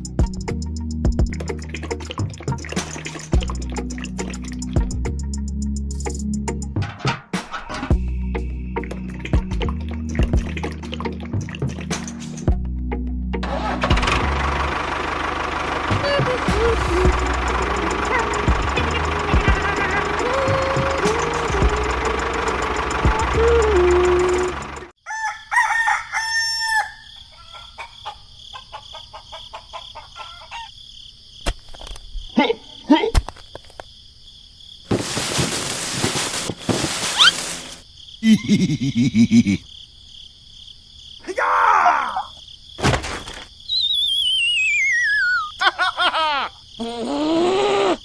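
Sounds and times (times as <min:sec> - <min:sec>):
motor noise: 0:13.9 - 0:24.9
rooster crowing: 0:25.0 - 0:30.8
chickens clucking: 0:27.2 - 0:30.7
squeaky chirps and warbling squeal: 0:37.0 - 0:37.6, 0:43.7 - 0:45.6
whistle sliding down in pitch: 0:43.7 - 0:45.5.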